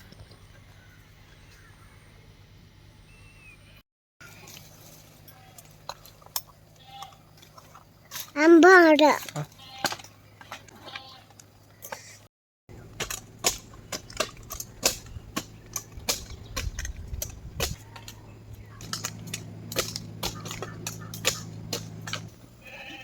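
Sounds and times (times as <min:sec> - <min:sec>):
sharp clicks and knocks: 0:12.9 - 0:22.3.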